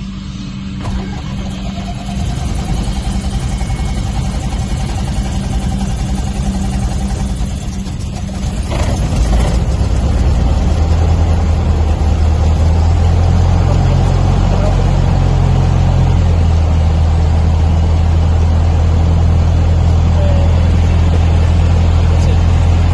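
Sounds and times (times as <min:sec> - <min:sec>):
aircraft engine idling: 0:00.0 - 0:22.9
engine starter cranking: 0:00.8 - 0:11.0.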